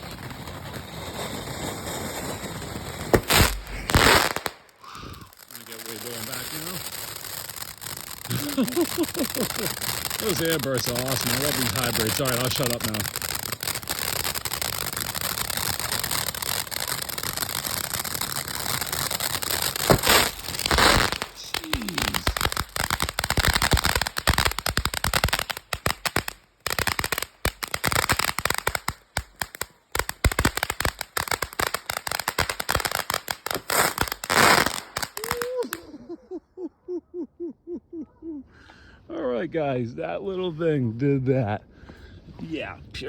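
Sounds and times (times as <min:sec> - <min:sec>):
firework aerial bursts banging: 0:00.0 - 0:36.0
firework crackling: 0:00.0 - 0:36.1
fountain firework spraying hiss: 0:03.1 - 0:28.8.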